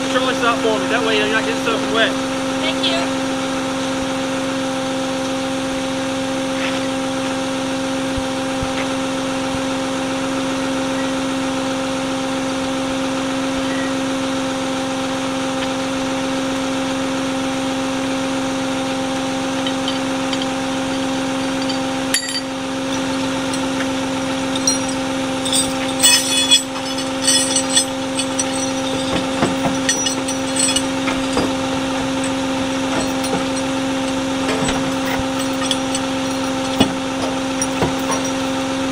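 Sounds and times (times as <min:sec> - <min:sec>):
vehicle engine droning: 0:16.6 - 0:38.9
metallic clinks and rattles: 0:19.6 - 0:38.6.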